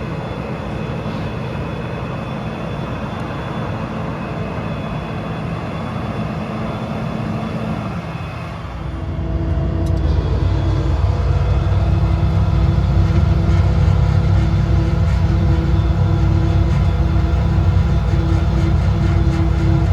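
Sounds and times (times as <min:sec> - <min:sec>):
faint high whine: 0:00.0 - 0:19.9
diesel truck engine running: 0:06.7 - 0:19.9.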